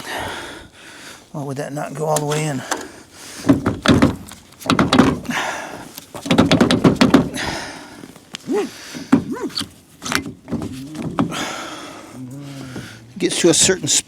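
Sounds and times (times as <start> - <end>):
metal clanks and knocks: 3.4 - 5.6, 6.2 - 7.6.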